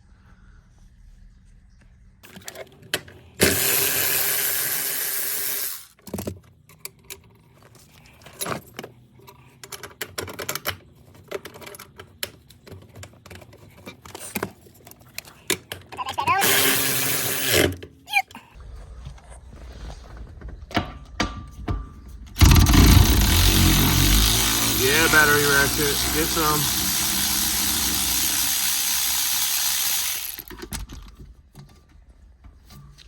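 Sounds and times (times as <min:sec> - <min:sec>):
cordless ratchet running: 0:16.4 - 0:17.7, 0:22.4 - 0:30.7.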